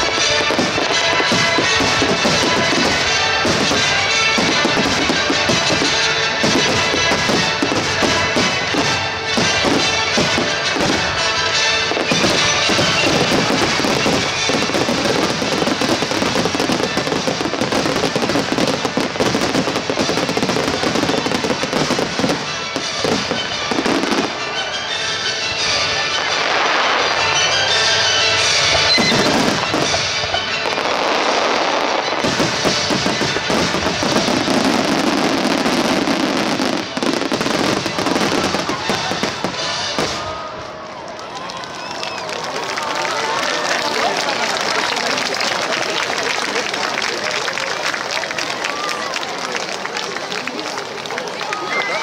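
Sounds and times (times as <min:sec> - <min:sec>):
music playing: 0:00.0 - 0:41.0
fireworks bursting: 0:00.0 - 0:52.0.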